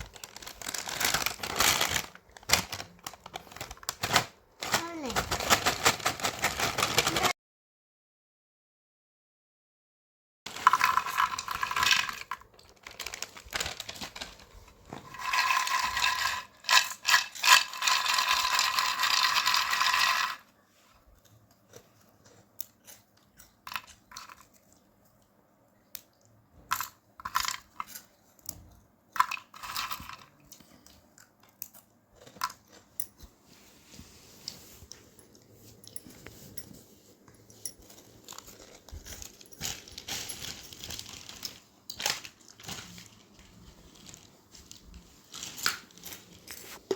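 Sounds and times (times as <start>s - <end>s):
crisp snacks crackling: 0.0s - 4.1s, 10.5s - 20.3s, 38.2s - 46.5s
plastic snack packet crinkling: 0.0s - 7.3s, 10.5s - 20.4s, 37.8s - 46.9s.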